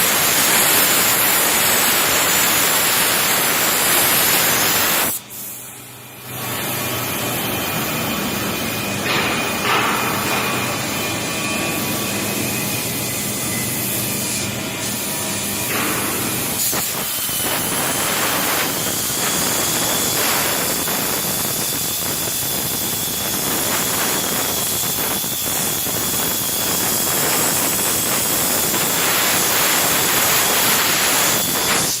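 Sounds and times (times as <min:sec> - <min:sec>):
plasma torch hissing: 0:00.0 - 0:07.5, 0:13.9 - 0:32.0.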